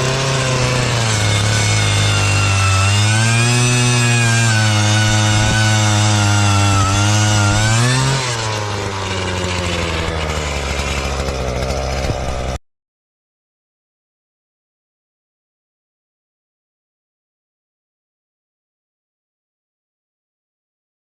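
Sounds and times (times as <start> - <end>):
small two-stroke engine running: 0.0 - 12.6.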